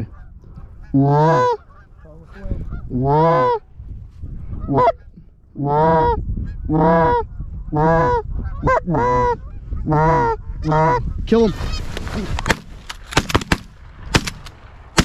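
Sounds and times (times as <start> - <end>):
loud goose honks: 4.6 - 11.0.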